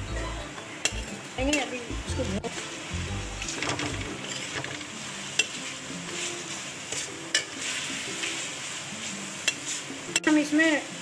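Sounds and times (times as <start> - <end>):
chicken sizzling in oil: 0.0 - 11.0
spoon stirring and scraping: 3.4 - 10.3.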